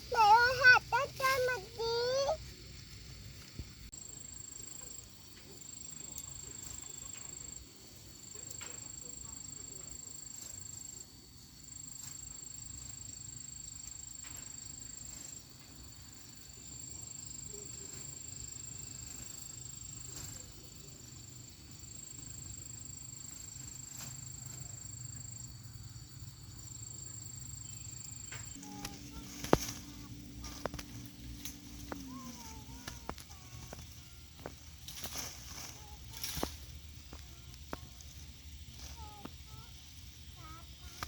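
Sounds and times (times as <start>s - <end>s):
high-pitched insect chirring: 26.2s - 41.0s
low steady hum: 28.5s - 39.0s.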